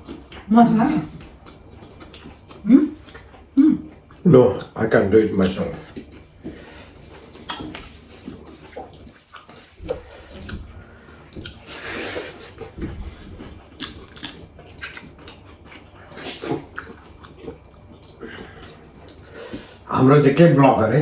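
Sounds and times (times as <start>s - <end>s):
wet eating noise: 0.0s - 21.0s.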